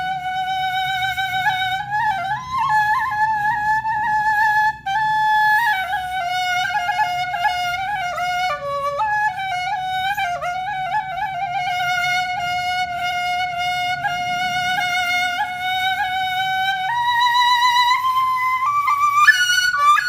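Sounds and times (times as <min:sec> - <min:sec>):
flute-like wind instrument melody: 0:00.0 - 0:20.0.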